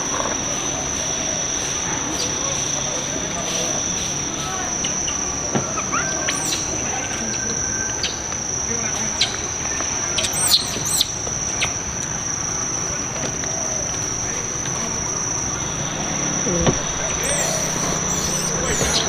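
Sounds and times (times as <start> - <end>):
high-pitched insect drone: 0.0 - 19.0
short high calls and clicks: 16.8 - 19.0.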